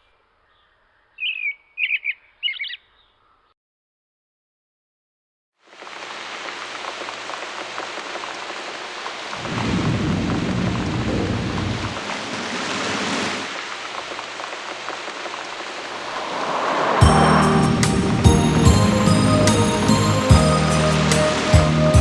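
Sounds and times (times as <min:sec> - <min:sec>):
rain falling: 0:05.6 - 0:22.0
thunder rumbling: 0:09.3 - 0:14.4, 0:15.9 - 0:22.0
music: 0:17.0 - 0:22.0.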